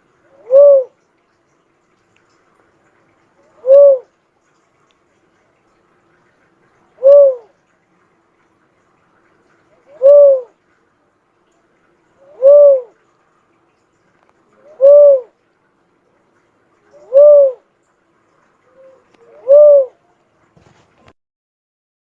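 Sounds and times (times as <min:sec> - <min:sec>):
dove cooing: 0:00.3 - 0:01.0, 0:03.4 - 0:04.1, 0:07.0 - 0:07.6, 0:09.7 - 0:10.6, 0:12.2 - 0:13.0, 0:14.5 - 0:15.4, 0:16.9 - 0:17.6, 0:18.6 - 0:20.1.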